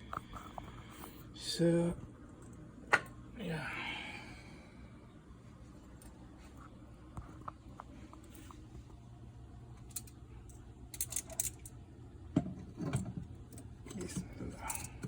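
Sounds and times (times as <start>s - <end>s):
low steady hum: 0.0s - 15.0s
skewers clicking and clattering: 9.8s - 11.8s.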